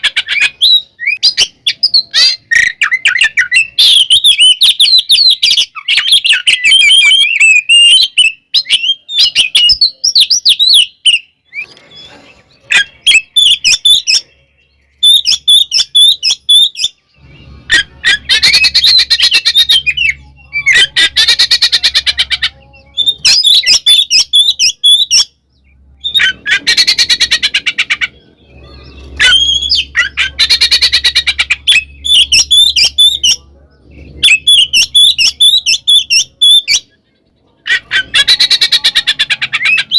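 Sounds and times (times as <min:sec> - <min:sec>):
bird singing whistled phrases: 0:00.2 - 0:12.1, 0:14.9 - 0:27.4, 0:28.5 - 0:33.4.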